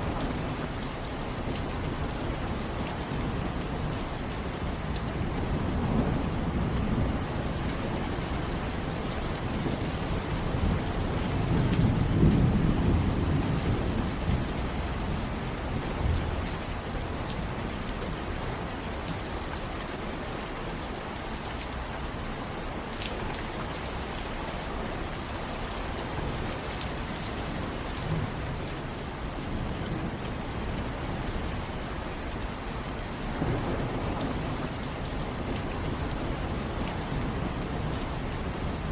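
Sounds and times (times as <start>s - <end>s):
rain pattering: 0.0s - 38.9s
low roll of thunder: 10.6s - 16.3s.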